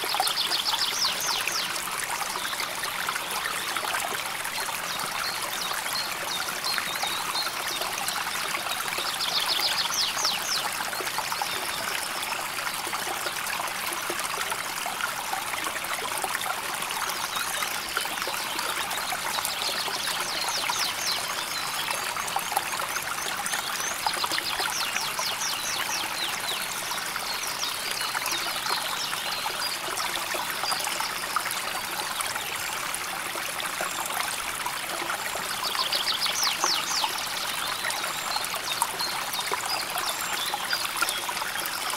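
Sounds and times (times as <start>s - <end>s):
river water flowing over stones: 0.0s - 41.9s.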